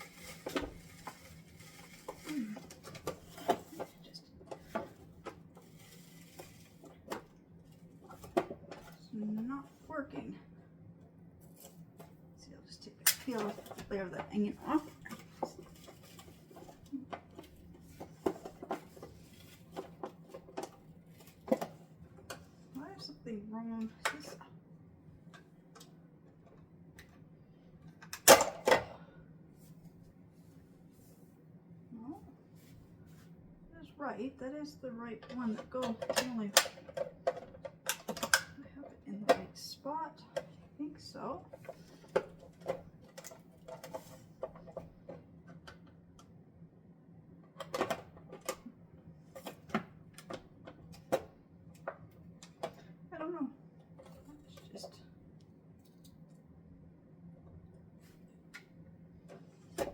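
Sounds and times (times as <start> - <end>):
plastic parts clattering: 41.5 - 45.2.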